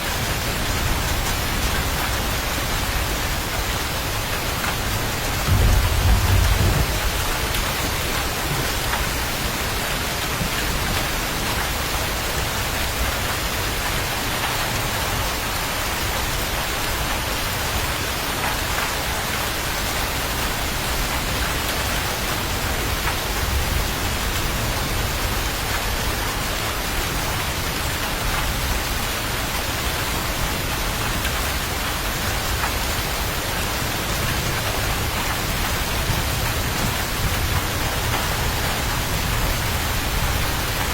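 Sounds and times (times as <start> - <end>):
steady rain falling: 0.0 - 40.9
low rumble of thunder: 4.9 - 9.0.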